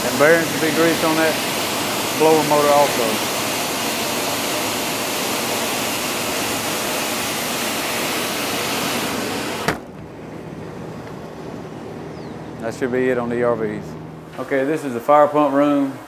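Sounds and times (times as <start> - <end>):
ventilator air rush: 0.0 - 16.0
low hum: 9.6 - 14.6.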